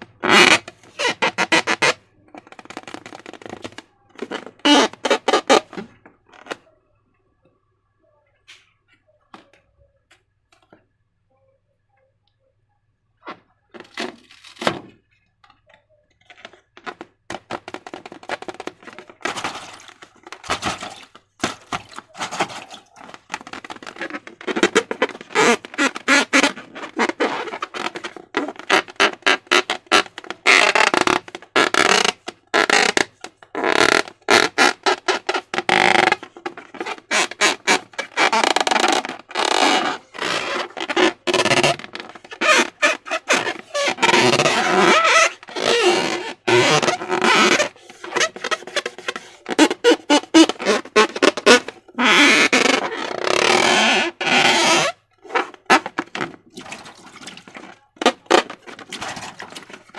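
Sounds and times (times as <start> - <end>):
fart-like squeaks of balloons: 0.0 - 6.6, 16.3 - 59.9
slime squelching: 17.6 - 28.7, 39.0 - 59.9.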